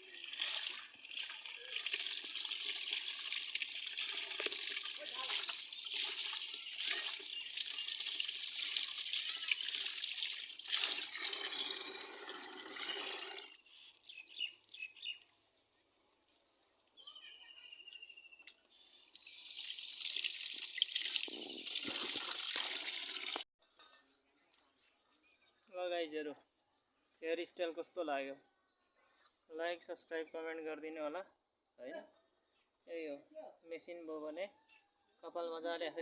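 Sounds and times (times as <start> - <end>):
water pouring and splashing: 0.0 - 13.6, 19.0 - 23.5.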